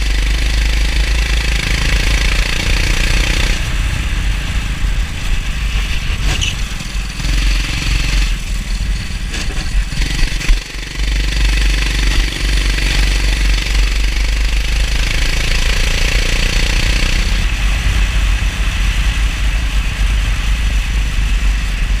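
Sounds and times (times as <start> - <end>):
go-kart engine running: 0.0 - 22.0.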